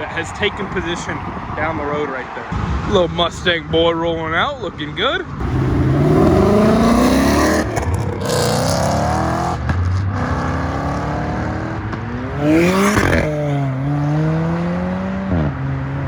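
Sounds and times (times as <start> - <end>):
car engine accelerating hard: 5.4 - 16.0.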